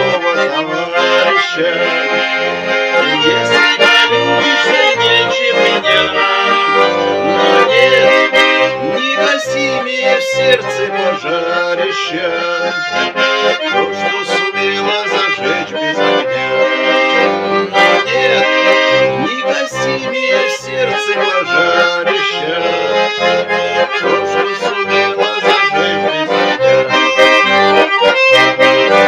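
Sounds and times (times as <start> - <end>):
accordion playing: 0.0 - 29.0.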